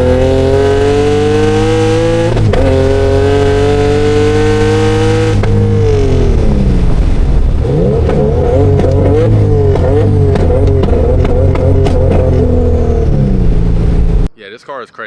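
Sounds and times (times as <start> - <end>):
car engine revving: 0.0 - 14.3.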